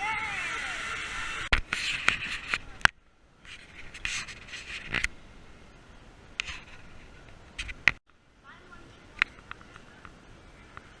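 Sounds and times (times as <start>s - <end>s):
rubbing and scratching: 3.5s - 5.1s, 6.4s - 7.8s.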